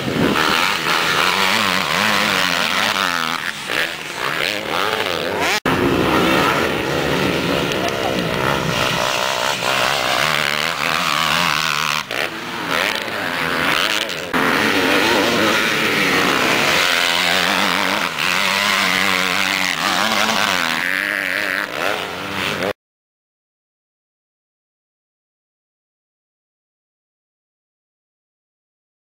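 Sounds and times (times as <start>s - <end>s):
motocross bike engines revving: 0.0s - 22.8s.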